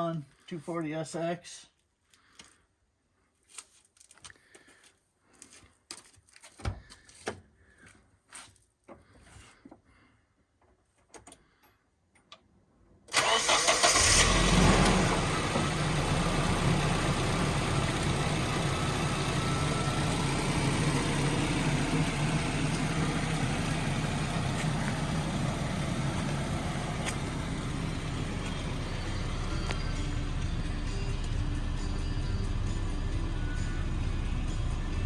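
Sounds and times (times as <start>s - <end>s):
starter motor cranking: 13.1s - 22.0s
car engine idling: 13.2s - 35.0s.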